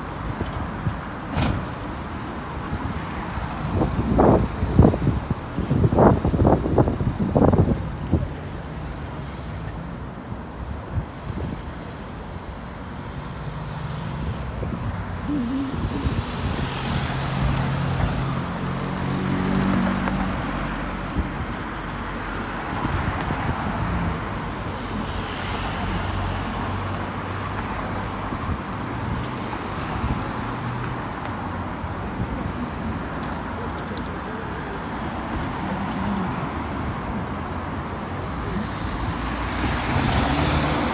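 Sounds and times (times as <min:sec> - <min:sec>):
road traffic passing: 0:00.0 - 0:40.9
heavy vehicle engine hum: 0:13.3 - 0:40.9.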